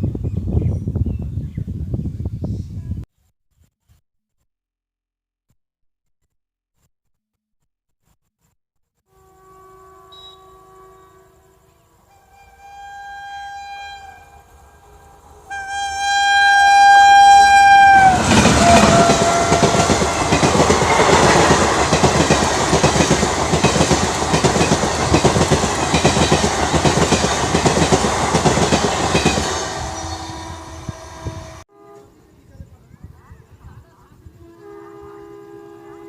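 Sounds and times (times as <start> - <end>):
locomotive horn blowing: 9.1 - 21.4, 29.0 - 32.2, 34.3 - 36.0.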